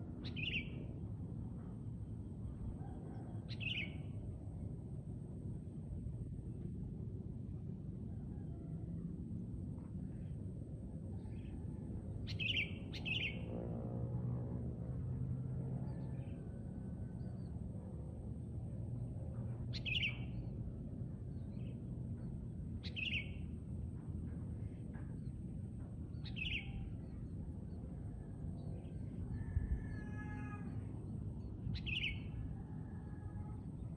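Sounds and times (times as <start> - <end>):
low background rumble: 0.0 - 33.9.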